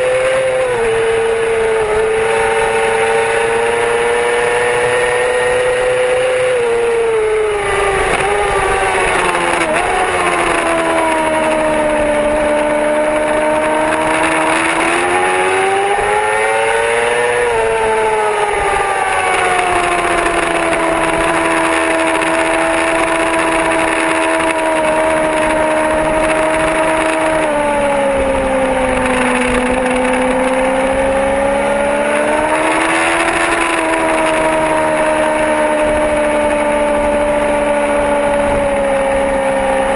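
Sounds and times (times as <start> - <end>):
motorcycle engine at speed: 0.0 - 39.9
rush of noise: 0.0 - 39.9.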